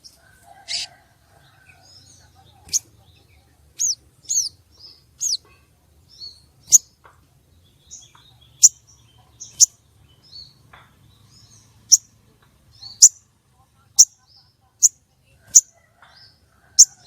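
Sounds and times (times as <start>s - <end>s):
bird chirps and chips: 3.7s - 6.9s, 7.9s - 10.6s, 12.7s - 13.2s.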